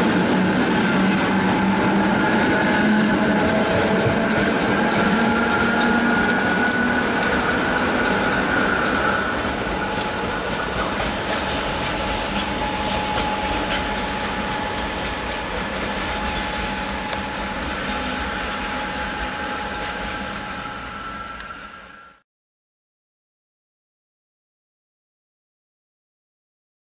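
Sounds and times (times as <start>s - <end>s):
train running gear rumble: 0.0s - 22.0s
electric train whine: 0.0s - 22.2s
wheels clicking over rail joints: 1.0s - 17.6s.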